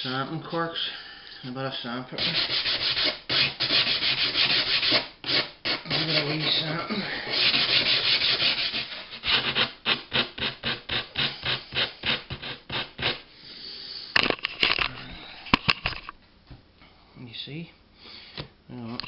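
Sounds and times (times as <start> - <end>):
sandpaper rubbing on wood: 2.2 - 13.2.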